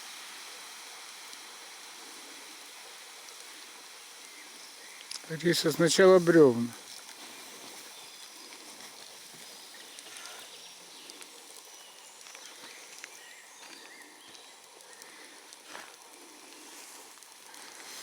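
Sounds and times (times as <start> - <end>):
small clicks and rustles: 5.0 - 5.3, 6.8 - 18.0.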